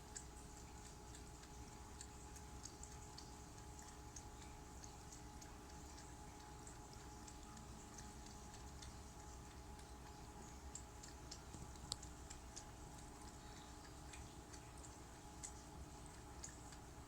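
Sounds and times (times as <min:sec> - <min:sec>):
cat lapping water: 0:00.0 - 0:17.0
fountain pump hum: 0:00.0 - 0:17.0.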